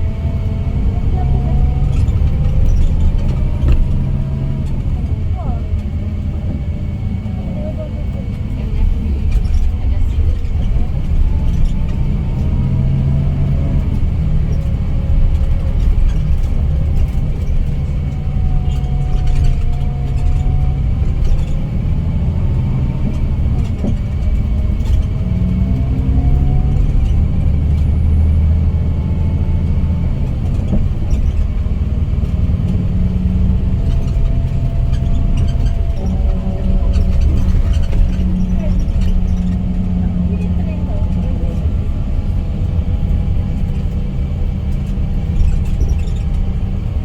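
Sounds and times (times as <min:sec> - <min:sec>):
coach engine and road rumble: 0:00.0 - 0:47.0.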